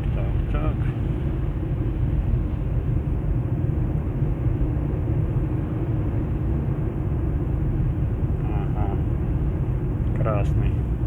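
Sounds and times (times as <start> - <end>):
car driving on slushy road: 0.0 - 8.2.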